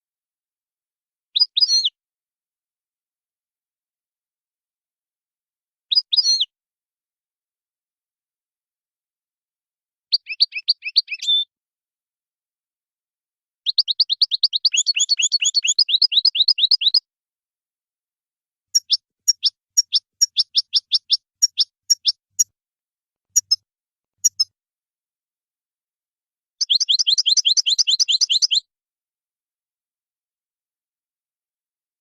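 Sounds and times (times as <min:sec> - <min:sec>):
goldfinch singing: 0:10.1 - 0:11.5, 0:13.6 - 0:17.0, 0:18.7 - 0:22.5, 0:26.6 - 0:28.7.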